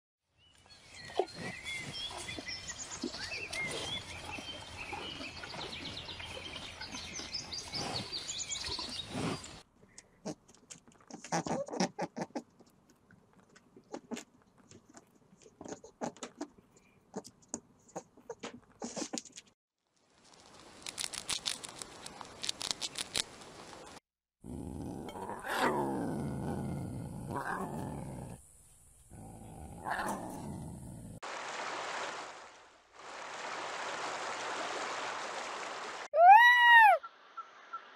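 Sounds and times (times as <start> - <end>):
small birds chirping: 0.4 - 9.6
rabbit munching grass: 20.4 - 23.7.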